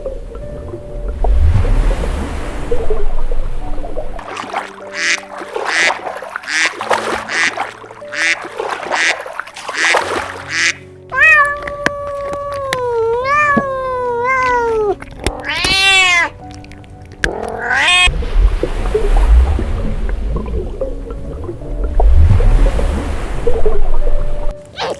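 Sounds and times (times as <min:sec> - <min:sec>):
background music: 0:00.0 - 0:24.9
animal's wavering cries: 0:10.6 - 0:16.4, 0:17.3 - 0:18.1.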